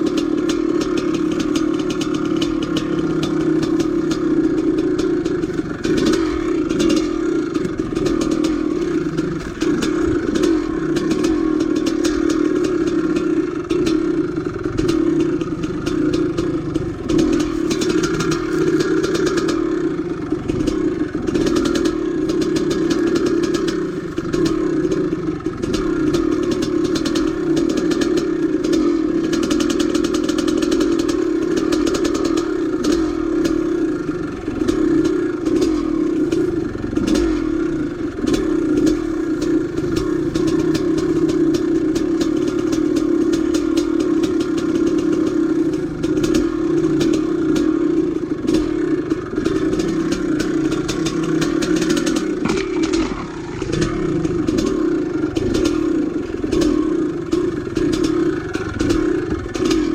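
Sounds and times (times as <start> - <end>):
dirt bike engine running: 0.0 - 59.9
bike clattering over rough ground: 48.4 - 59.9.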